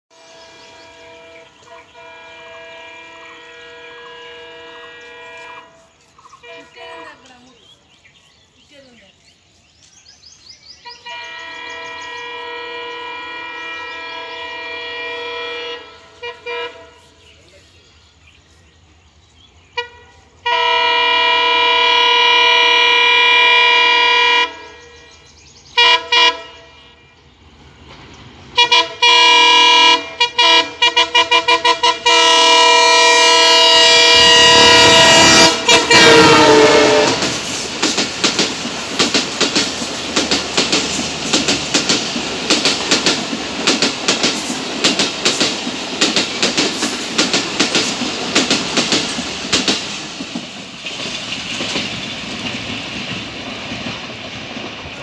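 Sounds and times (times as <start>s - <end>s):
train air horn: 0.1s - 7.4s, 10.8s - 17.3s, 19.7s - 24.9s, 25.8s - 27.2s, 28.6s - 37.6s
train wheels clickety-clack: 35.4s - 55.0s.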